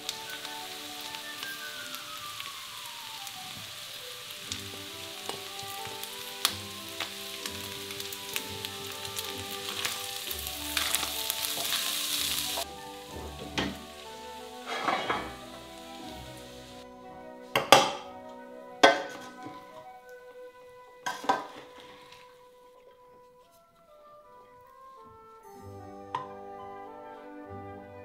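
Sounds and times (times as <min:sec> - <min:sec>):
filling sizzling in a pan: 0:00.0 - 0:16.9, 0:18.8 - 0:22.7
pan clattering: 0:14.6 - 0:15.5, 0:18.8 - 0:19.6, 0:21.0 - 0:22.2.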